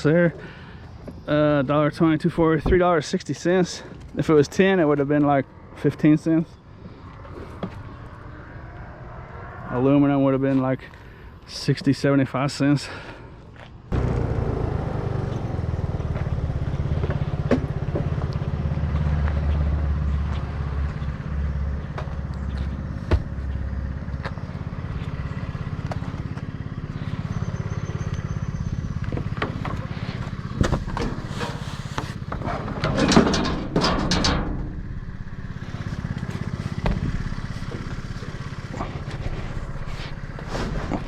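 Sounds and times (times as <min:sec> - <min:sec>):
road noise: 0:00.0 - 0:41.0
vehicle engine running: 0:13.6 - 0:41.0.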